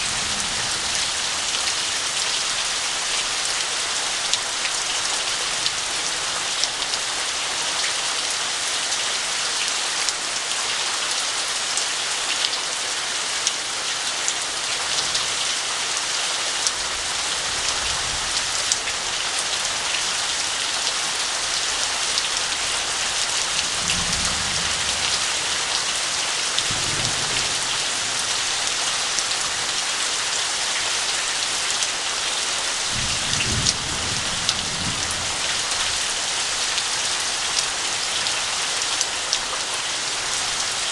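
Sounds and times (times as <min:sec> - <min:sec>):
thunder rumbling: 0:00.0 - 0:02.8, 0:23.6 - 0:25.8
heavy rain: 0:00.0 - 0:40.9.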